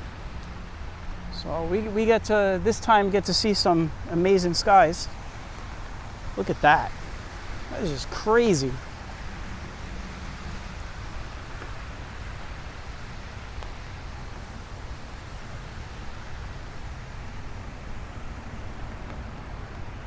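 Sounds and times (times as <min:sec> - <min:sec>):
even hiss: 0:06.3 - 0:11.9.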